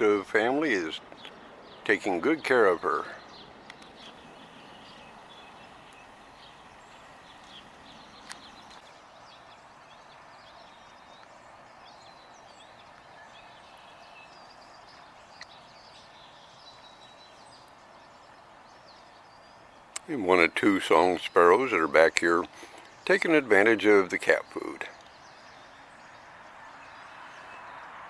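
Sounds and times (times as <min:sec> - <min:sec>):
steady background hiss: 0:00.0 - 0:10.2
small birds chirping: 0:00.0 - 0:28.0
sharp clicks: 0:07.3 - 0:08.9.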